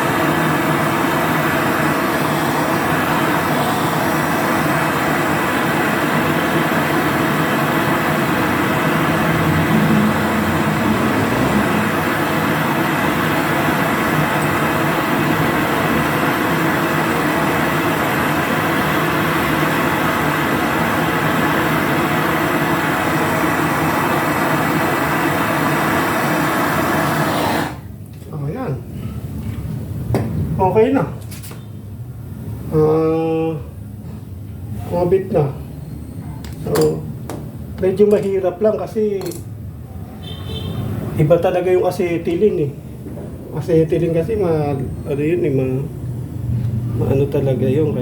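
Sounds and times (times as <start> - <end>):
brazing torch flame hissing: 0.0 - 27.9.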